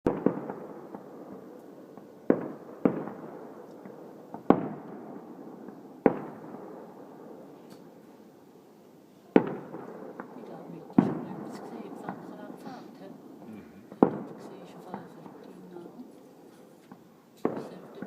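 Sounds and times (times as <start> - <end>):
firework shells bursting: 9.3 - 18.0.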